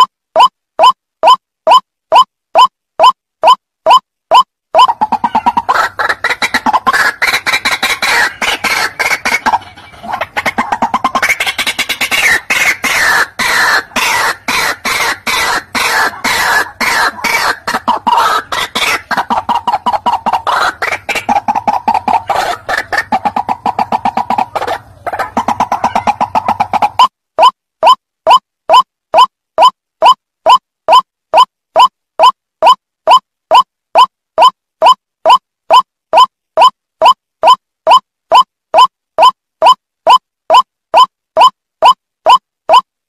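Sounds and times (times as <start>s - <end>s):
waterhen calling: 4.8s - 27.5s.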